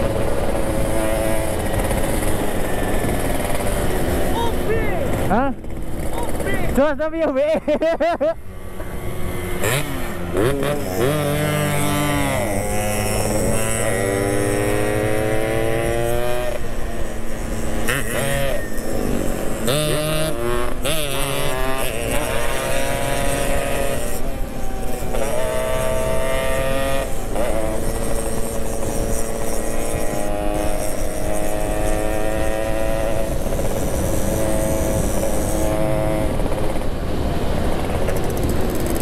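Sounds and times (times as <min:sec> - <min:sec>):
two-stroke motorcycle engine: 0:00.0 - 0:39.0.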